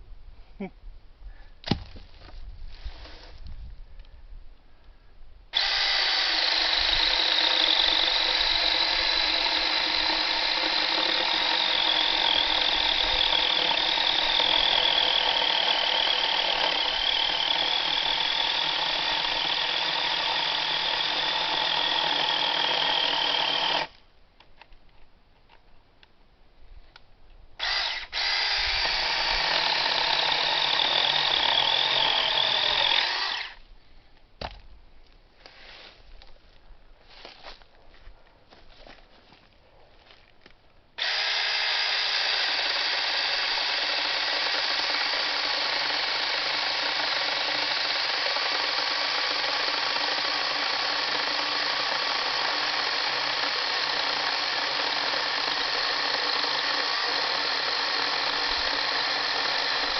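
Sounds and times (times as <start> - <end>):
chainsaw sawing wood: 5.5 - 24.0, 27.6 - 33.6, 35.4 - 36.0, 41.0 - 59.9.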